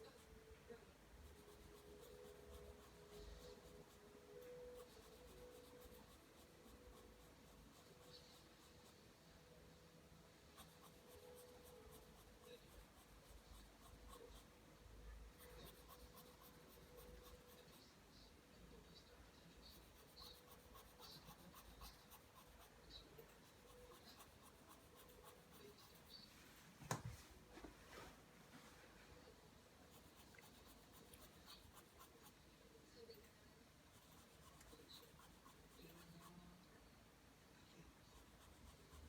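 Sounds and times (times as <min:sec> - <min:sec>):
pencil scratching on paper: 0:01.2 - 0:09.0, 0:10.5 - 0:14.5, 0:15.3 - 0:17.9, 0:19.5 - 0:26.3, 0:29.9 - 0:32.4, 0:33.9 - 0:36.5, 0:38.1 - 0:39.0.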